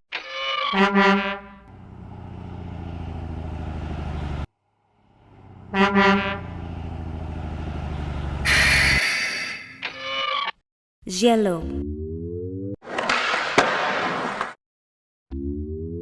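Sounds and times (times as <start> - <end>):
truck horn toots: 0.7 - 1.8, 5.3 - 6.9, 8.3 - 9.5
truck engine running: 1.4 - 9.0.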